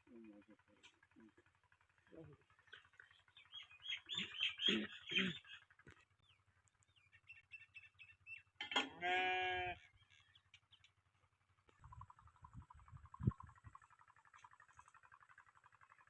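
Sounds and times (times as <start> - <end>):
small birds chirping: 2.0 - 8.6, 9.8 - 16.0
goat bleating: 8.8 - 9.9.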